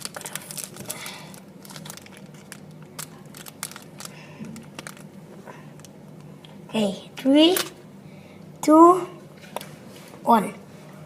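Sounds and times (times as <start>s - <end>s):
plastic wrapper crinkling and tearing: 0.0s - 5.2s.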